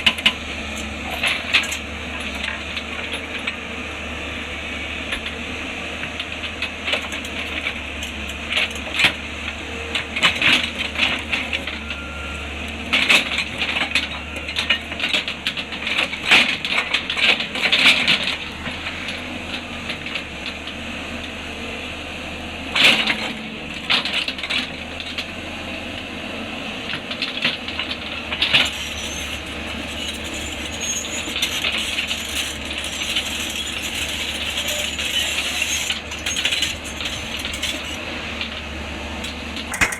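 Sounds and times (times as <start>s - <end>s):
excavator engine running: 0.0s - 39.9s
rock and steel clattering: 6.3s - 20.2s, 28.3s - 39.9s.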